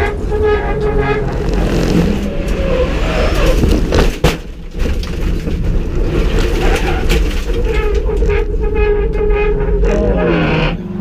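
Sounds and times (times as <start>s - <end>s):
race car engine running: 0.0s - 8.6s.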